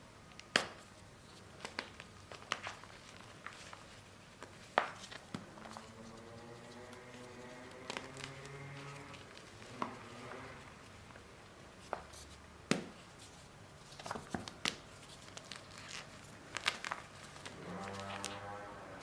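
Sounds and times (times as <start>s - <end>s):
chalk paste crumbling by hand: 0.6s - 18.3s.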